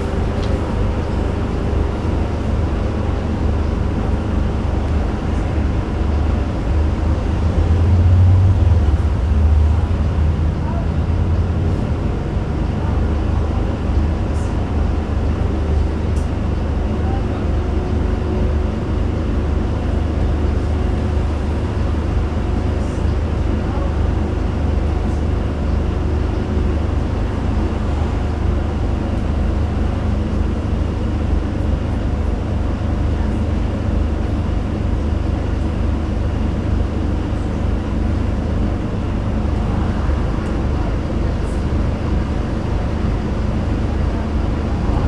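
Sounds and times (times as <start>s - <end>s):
road and body noise: 0.0s - 3.5s, 37.6s - 45.0s
bus diesel engine rumbling: 0.0s - 45.0s.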